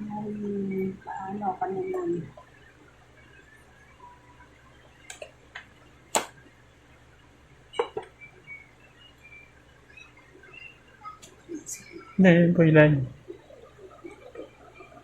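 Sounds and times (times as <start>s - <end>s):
phone packaging clicks and taps: 5.1s - 6.4s.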